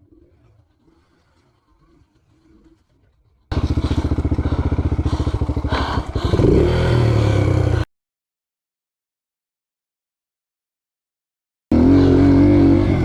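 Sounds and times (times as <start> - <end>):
dirt bike engine revving: 3.5 - 7.8, 11.7 - 13.0.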